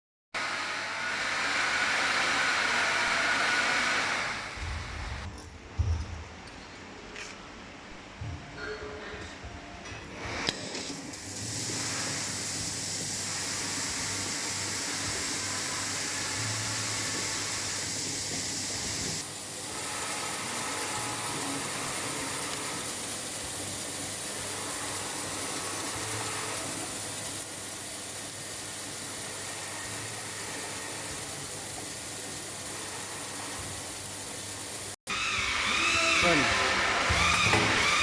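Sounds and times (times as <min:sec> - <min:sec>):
loud hiss: 0:11.0 - 0:38.0.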